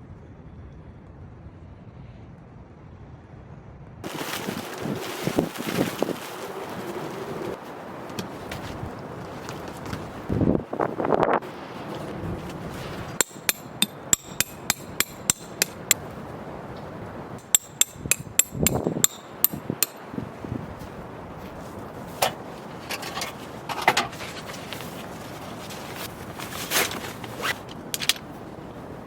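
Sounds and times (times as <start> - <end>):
rustling handling noise: 4.0 - 17.9, 18.6 - 29.0
hammer striking tent pegs: 13.0 - 16.0, 17.4 - 20.1.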